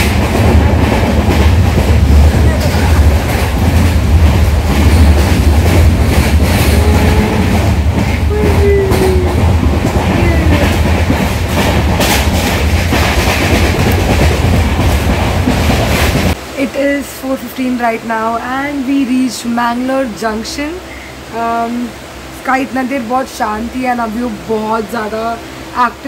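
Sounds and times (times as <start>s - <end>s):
rail clatter and rattles: 0.0s - 16.4s
train rumbling: 0.0s - 26.0s.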